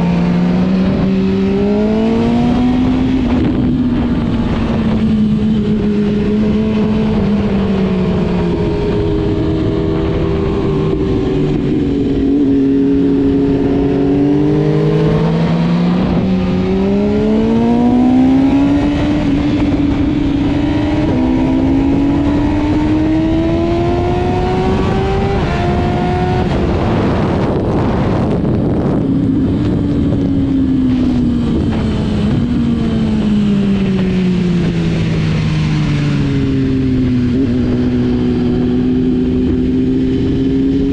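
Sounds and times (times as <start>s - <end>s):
constant rushing noise: 0.0s - 40.9s
motorcycle engine revving: 0.0s - 40.9s.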